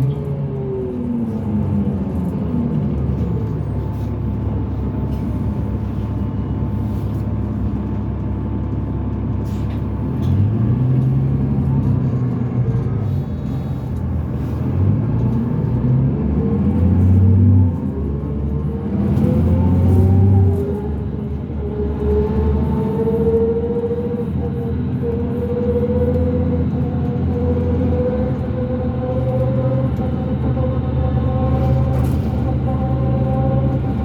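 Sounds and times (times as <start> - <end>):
diesel bus engine: 0.0 - 34.0
road noise rumble: 0.0 - 34.0.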